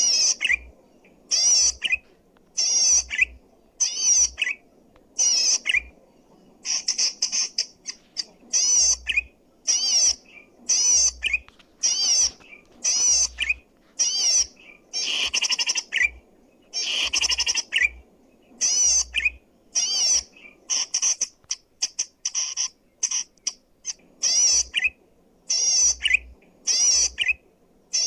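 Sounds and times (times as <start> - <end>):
bird chattering song: 0.0 - 4.6, 5.2 - 28.0.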